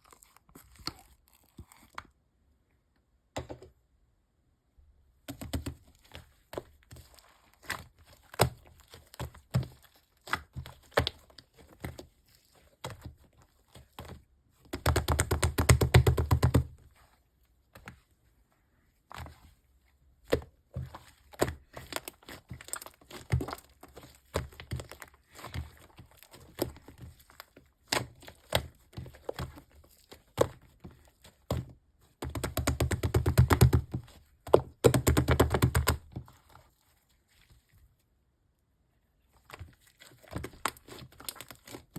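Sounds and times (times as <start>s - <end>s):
slime squished by hand: 20.2s - 37.7s.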